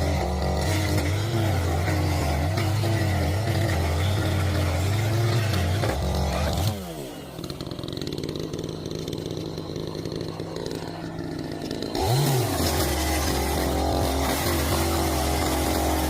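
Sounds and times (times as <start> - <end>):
chainsaw engine revving and idling: 0.0 - 16.0.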